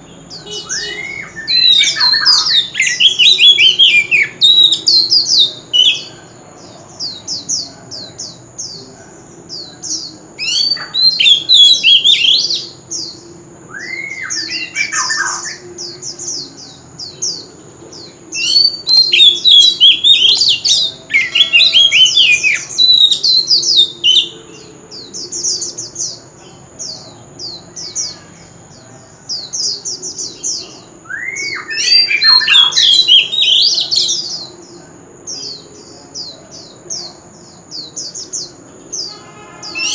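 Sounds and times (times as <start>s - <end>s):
bird singing whistled phrases: 0.0s - 6.2s, 10.4s - 12.8s, 13.7s - 16.0s, 18.4s - 25.1s, 30.3s - 34.5s, 39.0s - 39.9s.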